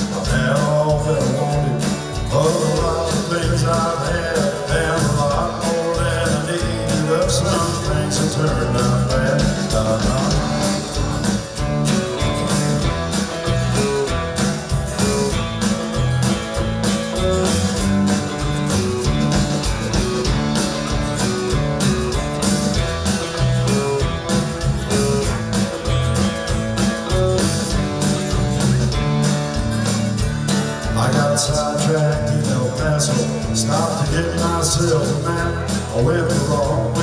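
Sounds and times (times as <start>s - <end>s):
guitar: 0.0s - 37.0s
live country band playing: 0.0s - 37.0s.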